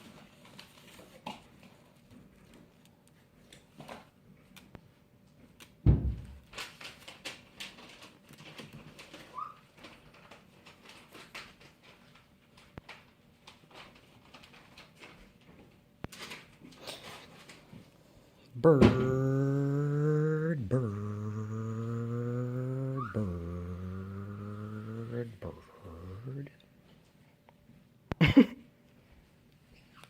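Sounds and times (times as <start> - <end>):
parrot scuffling and clicking: 6.4 - 16.7
loud thump: 18.8 - 19.2.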